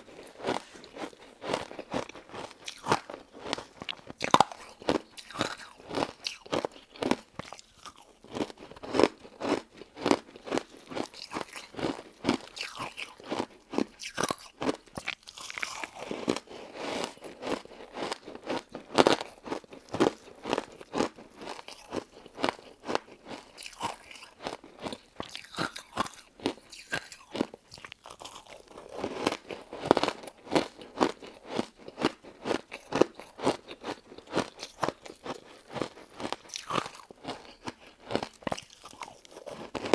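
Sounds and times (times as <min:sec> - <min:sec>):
chewing and crunching: 0:00.0 - 0:39.9.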